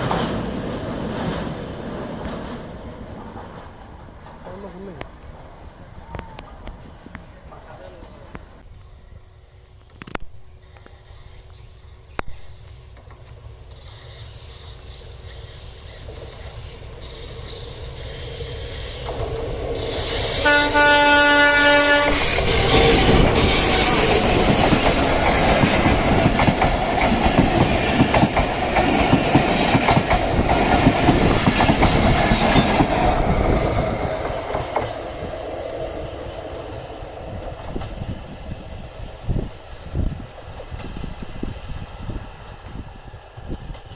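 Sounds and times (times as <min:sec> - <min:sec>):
train wheels on rails: 0:00.0 - 0:09.0, 0:09.6 - 0:43.9
train horn: 0:20.2 - 0:22.5.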